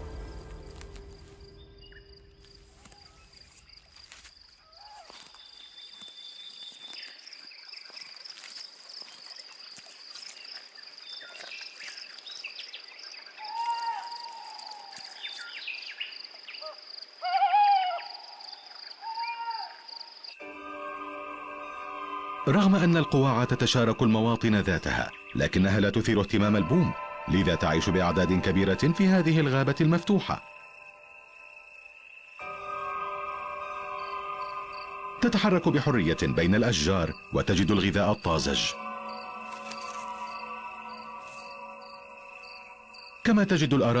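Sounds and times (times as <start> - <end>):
pulsing insect trill: 0.0 - 16.3, 19.9 - 44.0
rise-and-fall animal calls: 16.6 - 19.9.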